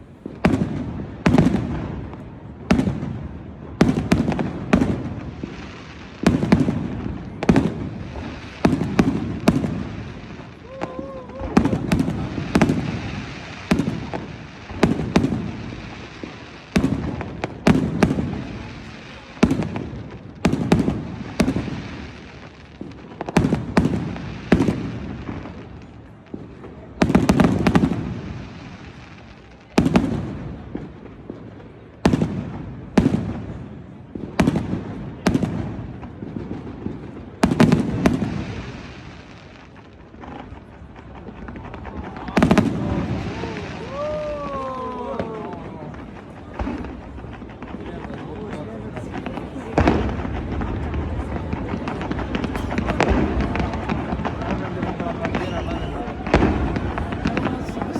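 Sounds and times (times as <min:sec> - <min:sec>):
firework shells bursting: 0:49.0 - 0:57.9.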